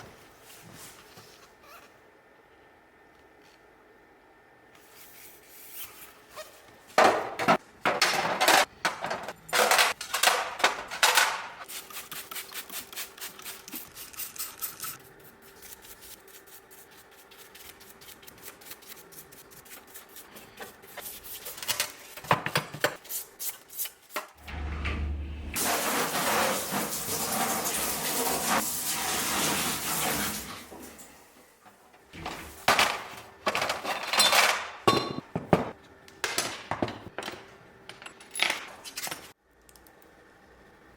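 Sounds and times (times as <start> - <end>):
metal tools clinking and knocking: 33.5 - 35.3.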